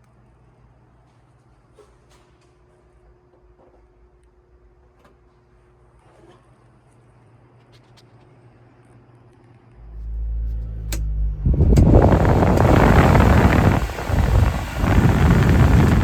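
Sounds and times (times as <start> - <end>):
clicks: 9.8 - 14.3
truck engine running: 9.8 - 16.0.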